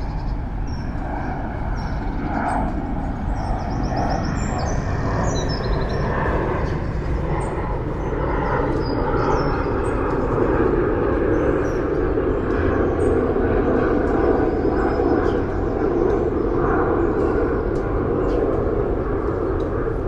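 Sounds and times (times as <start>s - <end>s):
small birds chirping: 0.0s - 20.0s
city traffic drone: 3.0s - 8.0s.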